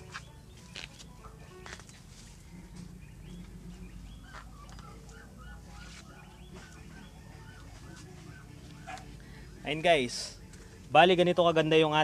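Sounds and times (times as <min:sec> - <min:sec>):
bird calling: 0:02.8 - 0:09.4.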